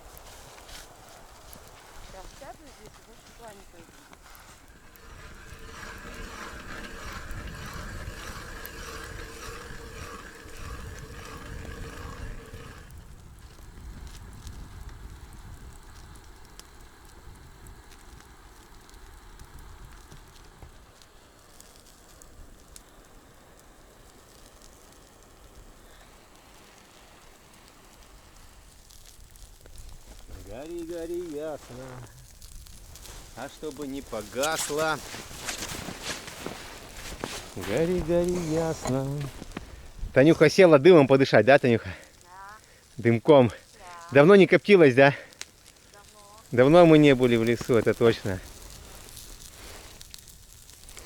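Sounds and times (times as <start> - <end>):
wind rumble on microphone: 0.0 - 20.8, 31.6 - 40.2
campfire crackling: 0.0 - 51.0.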